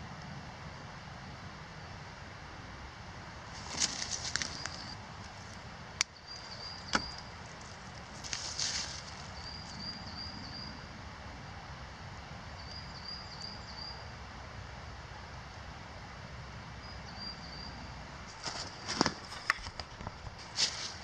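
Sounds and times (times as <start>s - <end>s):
low outdoor background noise: 0.0s - 21.0s
small bird chirping faintly: 3.6s - 10.9s, 12.5s - 14.2s.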